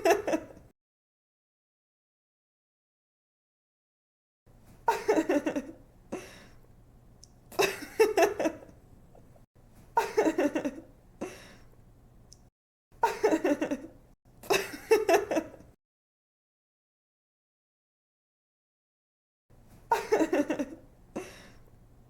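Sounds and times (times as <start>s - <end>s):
woman giggling: 0.0s - 0.6s, 4.9s - 5.8s, 7.6s - 8.7s, 10.0s - 10.9s, 13.0s - 15.7s, 19.9s - 21.5s.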